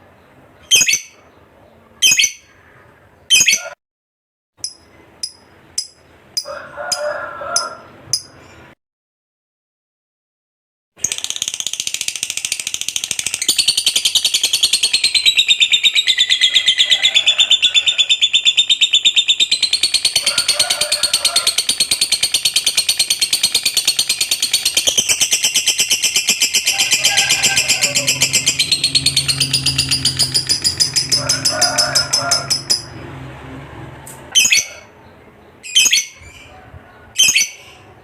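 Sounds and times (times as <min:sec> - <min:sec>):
lovebird chattering trill: 0:00.7 - 0:01.2, 0:02.0 - 0:02.5, 0:03.3 - 0:03.8, 0:11.1 - 0:32.9, 0:34.4 - 0:34.9, 0:35.7 - 0:36.5, 0:37.2 - 0:37.8.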